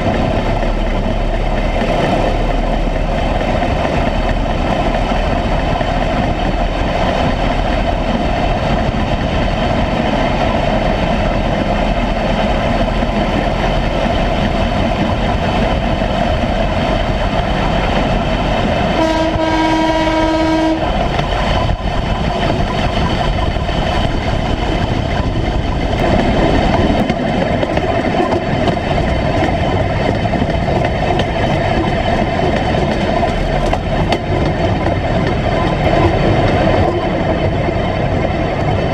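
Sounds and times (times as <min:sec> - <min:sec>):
vehicle running on railway track: 0:00.0 - 0:38.9
vehicle horn: 0:19.0 - 0:20.9.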